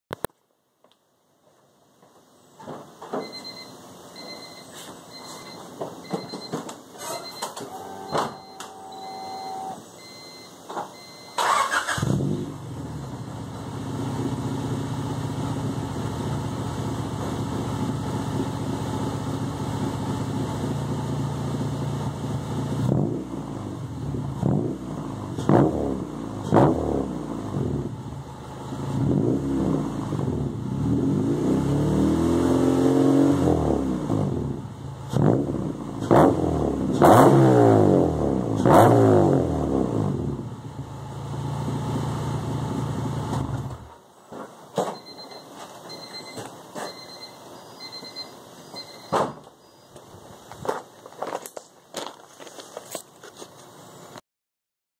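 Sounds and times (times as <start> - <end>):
car engine idling and revving: 11.0 - 44.0.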